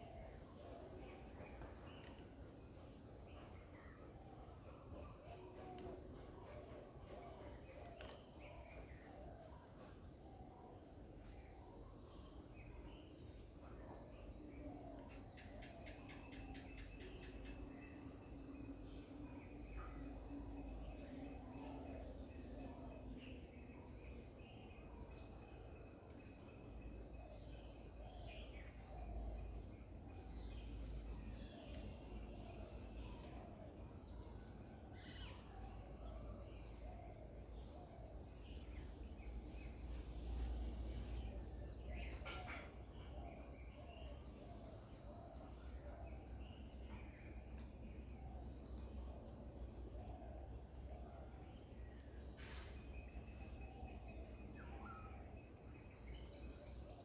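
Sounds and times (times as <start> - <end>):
insect drone: 0.0 - 57.0
small birds chirping: 11.2 - 57.0
bird chirps: 35.0 - 47.3.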